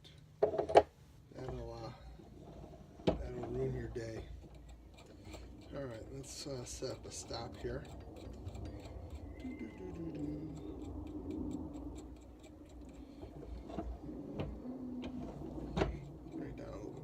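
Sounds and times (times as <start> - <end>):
steady ticking: 3.2 - 17.0
low rumble: 5.3 - 17.0.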